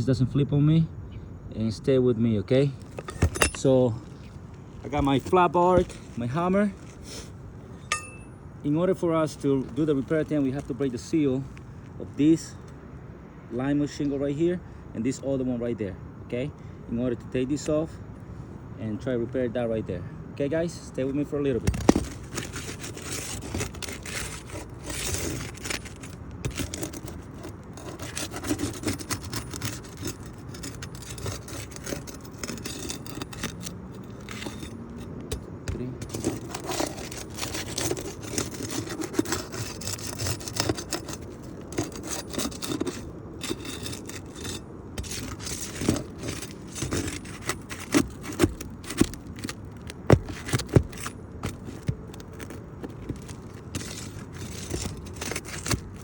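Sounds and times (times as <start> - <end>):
flat bar scraping under shingles: 2.8 - 12.6, 21.1 - 56.0.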